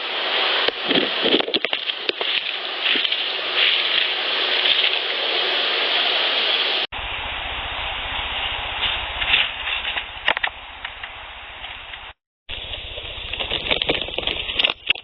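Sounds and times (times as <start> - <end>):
handling noise on recorder microphone: 0.6 - 5.1, 8.8 - 15.0
low steady hum: 7.0 - 14.9.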